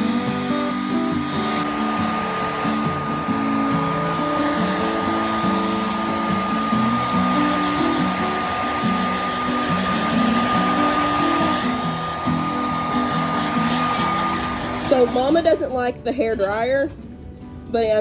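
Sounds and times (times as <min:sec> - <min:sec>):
background music: 0:00.0 - 0:18.0
hair dryer blowing with whine: 0:00.0 - 0:18.0.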